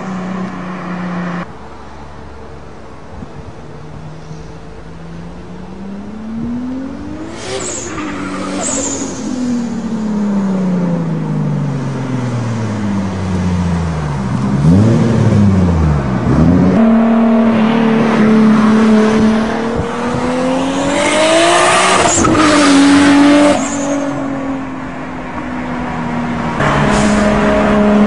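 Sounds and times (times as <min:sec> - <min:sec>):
car engine revving while driving: 0:05.4 - 0:12.3, 0:12.9 - 0:24.1.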